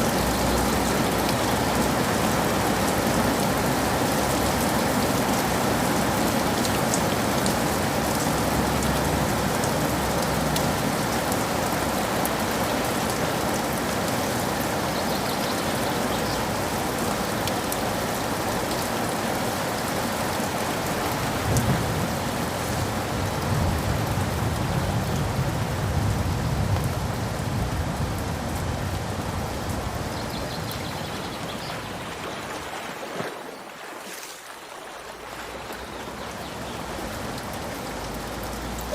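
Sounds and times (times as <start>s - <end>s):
steady rain falling: 0.0s - 38.9s
low rolling thunder: 21.3s - 30.1s.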